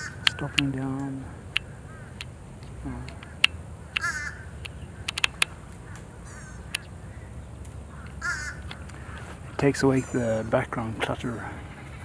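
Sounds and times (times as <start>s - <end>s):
distant traffic rumble: 0.0s - 12.0s
nasal bird calls: 0.0s - 12.0s
sharp clicks: 0.0s - 12.0s.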